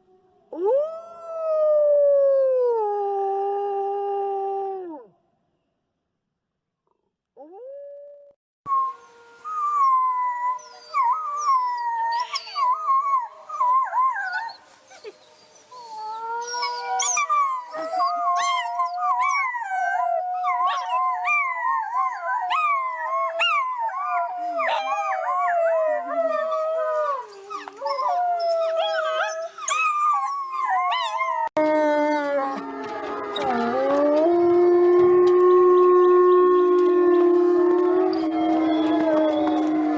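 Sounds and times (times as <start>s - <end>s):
wolves howling: 9.2s - 39.9s.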